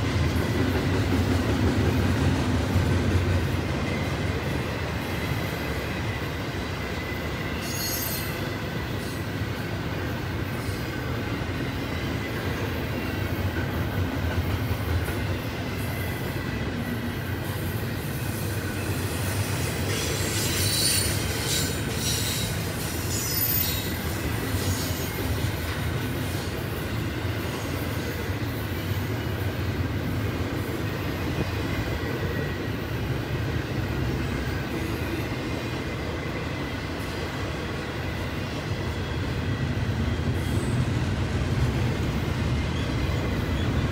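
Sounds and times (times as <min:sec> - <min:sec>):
steel wheels rumbling on rail: 0:00.0 - 0:43.9
high wheel squeals: 0:07.0 - 0:08.6, 0:18.2 - 0:25.4.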